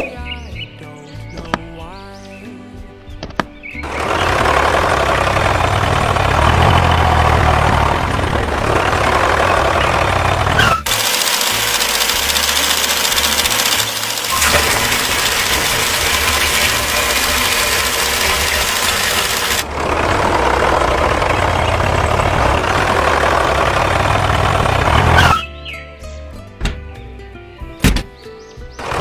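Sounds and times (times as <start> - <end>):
tractor engine running: 3.0 - 29.0
dense rushing noise: 3.9 - 10.6.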